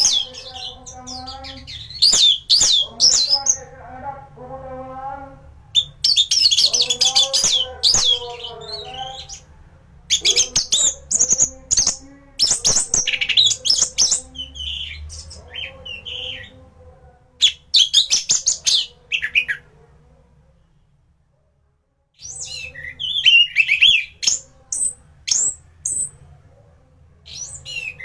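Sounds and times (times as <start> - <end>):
thrush singing: 0.0 - 19.8.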